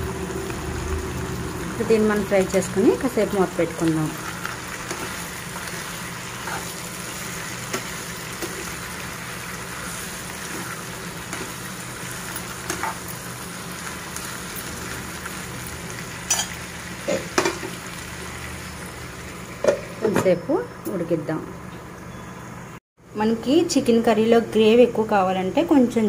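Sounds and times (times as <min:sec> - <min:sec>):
chicken and onions sizzling in pan: 0:00.0 - 0:20.1.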